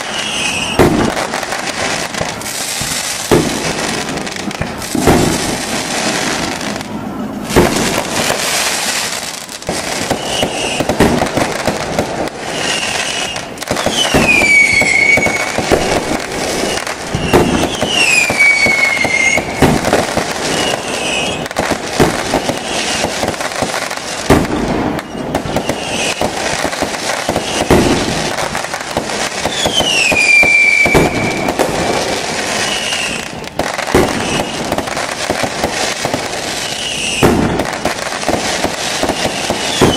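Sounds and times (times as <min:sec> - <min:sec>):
falling whistling tones: 0:00.0 - 0:00.9, 0:10.0 - 0:10.9, 0:12.4 - 0:19.6, 0:20.5 - 0:21.5, 0:24.9 - 0:26.4, 0:27.2 - 0:27.8, 0:29.4 - 0:31.6, 0:32.4 - 0:33.4, 0:34.0 - 0:34.8, 0:36.6 - 0:37.3
fireworks crackling and popping: 0:00.0 - 0:39.9.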